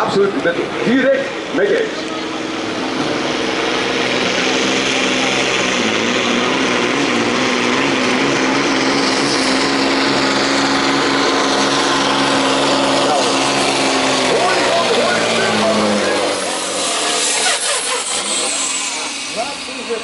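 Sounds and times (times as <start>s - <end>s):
diesel truck engine at full throttle: 0.0s - 20.0s.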